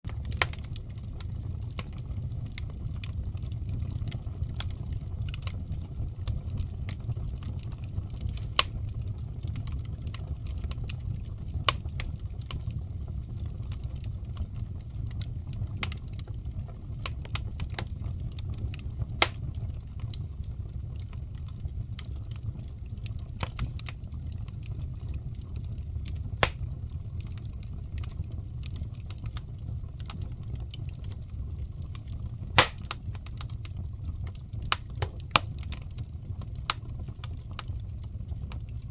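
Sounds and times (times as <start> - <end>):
fire crackling and popping: 0.1 - 38.9
low rumble of flames: 0.1 - 38.9.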